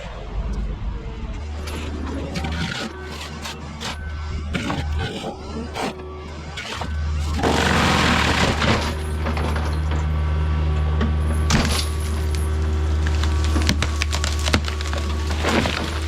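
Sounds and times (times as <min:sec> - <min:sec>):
mulching head chewing wood: 0:02.0 - 0:09.0, 0:12.9 - 0:16.0
wood cracking and splintering: 0:12.6 - 0:16.0.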